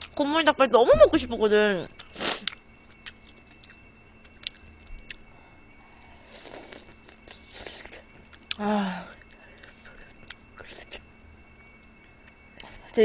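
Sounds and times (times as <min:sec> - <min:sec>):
chewing and smacking: 0:02.0 - 0:05.2, 0:06.3 - 0:08.6.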